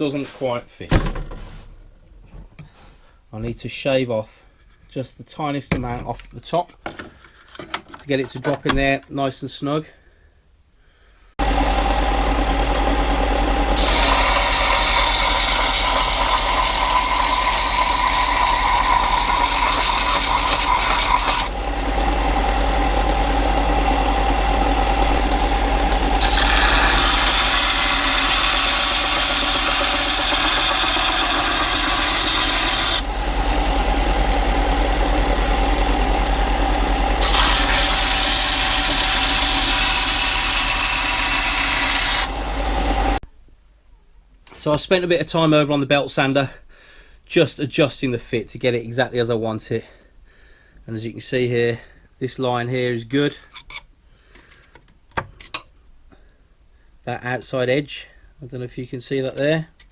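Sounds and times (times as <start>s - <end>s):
belt sander running: 11.4s - 43.2s
sander rasping on metal: 11.4s - 43.2s.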